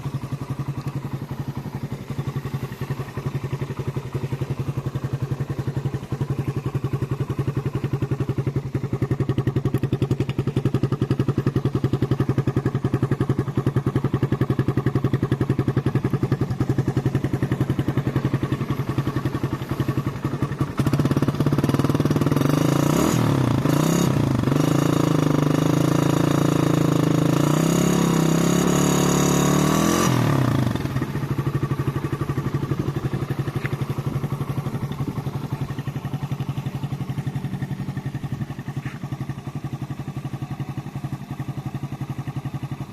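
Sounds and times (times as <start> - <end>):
motorcycle engine idling and revving: 0.0 - 42.9.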